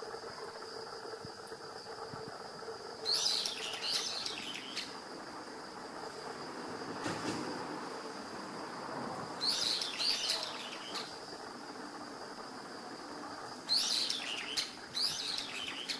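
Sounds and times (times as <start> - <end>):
songbirds chirping: 3.1 - 5.0, 9.4 - 11.1, 13.6 - 15.9.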